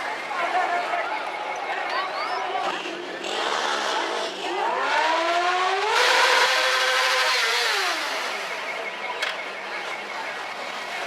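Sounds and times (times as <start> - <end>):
motorcycle engine revving: 2.6 - 9.4.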